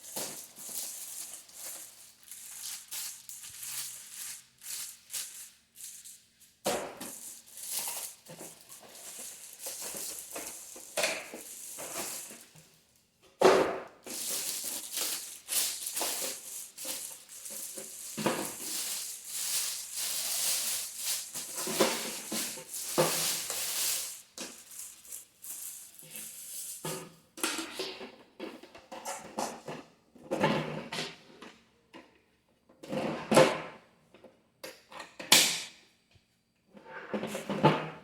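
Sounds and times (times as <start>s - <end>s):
plastic and cardboard crinkling: 0.0s - 6.0s, 7.0s - 12.6s, 14.0s - 26.4s.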